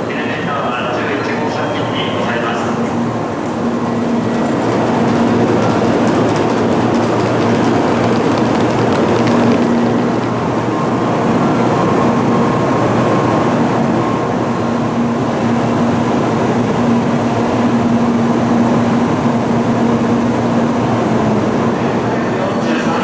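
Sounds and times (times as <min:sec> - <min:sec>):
train running: 0:00.0 - 0:23.0.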